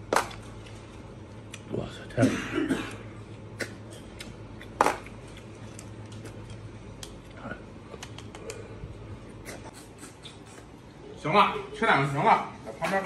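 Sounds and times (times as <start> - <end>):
low steady hum: 0.0 - 13.0
lip smacks and clicks: 3.5 - 8.6.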